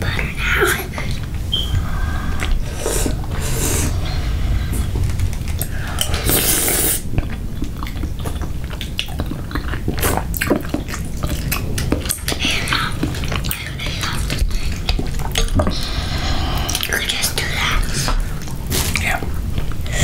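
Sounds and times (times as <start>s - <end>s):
chewing and biting food: 7.1s - 15.7s.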